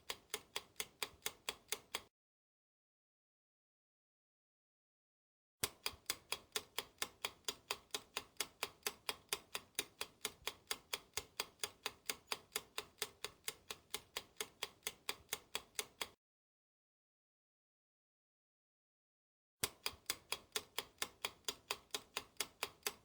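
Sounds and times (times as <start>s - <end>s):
clock ticking: 0.0s - 2.1s, 5.6s - 16.2s, 19.6s - 23.0s.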